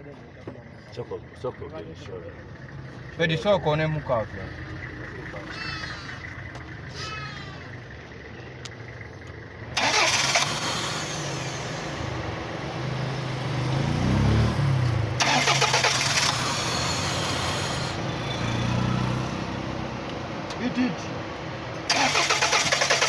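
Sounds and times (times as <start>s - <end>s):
car engine running and revving: 0.0s - 23.0s
loud hissing: 15.2s - 18.0s.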